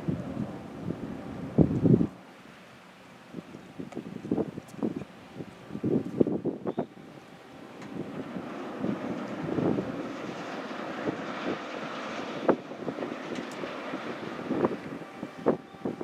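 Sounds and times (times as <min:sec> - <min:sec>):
wind buffeting microphone: 0:00.0 - 0:02.2, 0:03.2 - 0:16.0
ferry engine rumble: 0:00.0 - 0:16.0.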